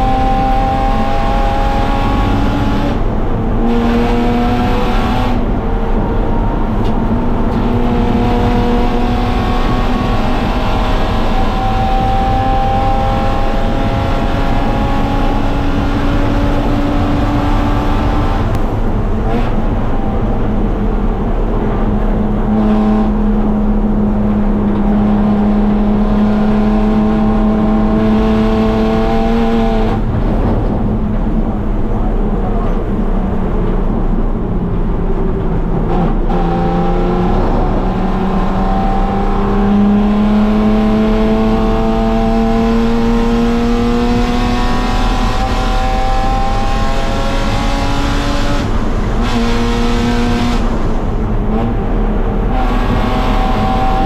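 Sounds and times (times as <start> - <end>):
race car engine revving: 0.0 - 54.0
road and wind noise: 0.0 - 54.0.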